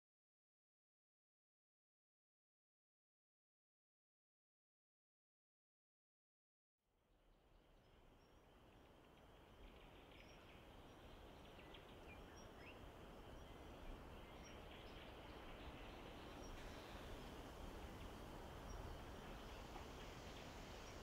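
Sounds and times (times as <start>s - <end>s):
steady background hiss: 7.1s - 21.0s.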